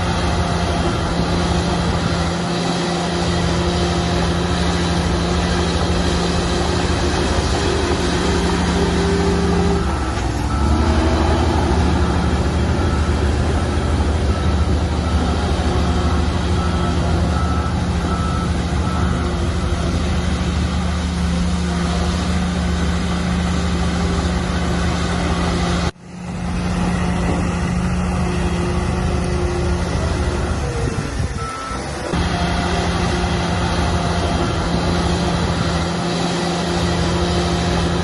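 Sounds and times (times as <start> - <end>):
bulldozer diesel engine running: 0.0 - 38.0
reversing alarm beeping: 0.2 - 20.1, 27.9 - 37.8.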